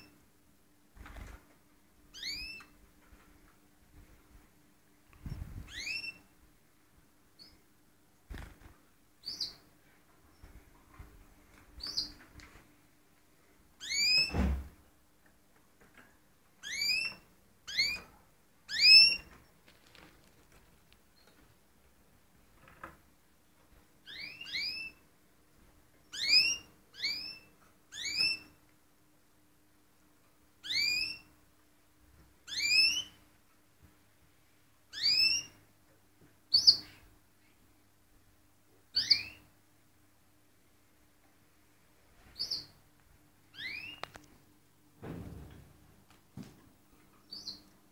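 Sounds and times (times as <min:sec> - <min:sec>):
soft thump: 0:45.0 - 0:45.6.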